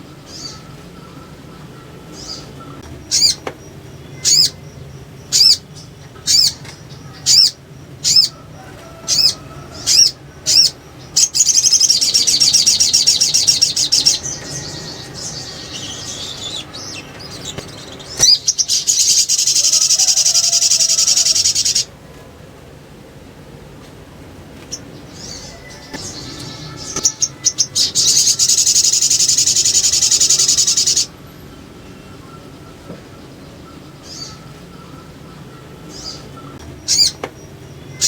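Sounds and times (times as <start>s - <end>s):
bird chattering trills: 0.0s - 21.9s, 24.7s - 38.0s
bird calling sharp high notes: 25.3s - 31.1s.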